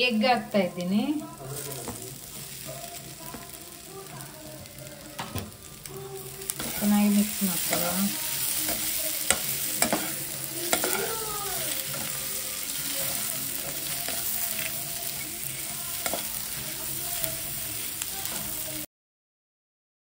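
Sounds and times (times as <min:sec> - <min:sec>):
food sizzling in oil: 0:00.0 - 0:18.9
metal spoon clicking on pan: 0:07.6 - 0:08.0, 0:08.6 - 0:11.1, 0:16.0 - 0:16.3.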